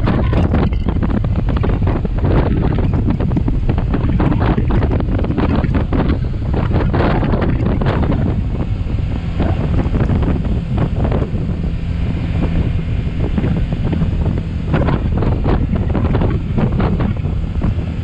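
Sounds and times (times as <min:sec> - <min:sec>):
motorcycle engine drone: 0:00.0 - 0:18.0
wind buffeting microphone: 0:00.0 - 0:18.0.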